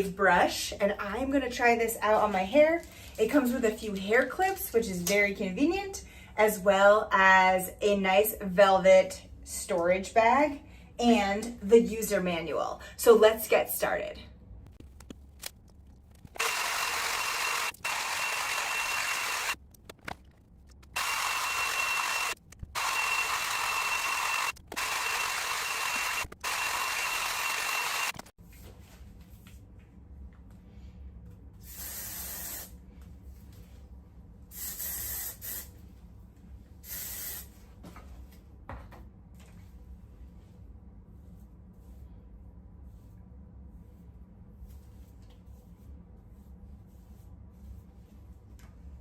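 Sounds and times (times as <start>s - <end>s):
hair dryer brush blowing: 16.4s - 19.6s, 21.0s - 28.2s.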